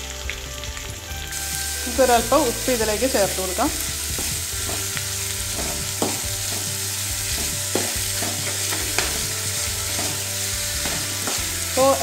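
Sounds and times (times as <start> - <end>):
onions sizzling in hot oil: 0.0 - 12.0
metal spoon scraping a pan: 3.8 - 12.0.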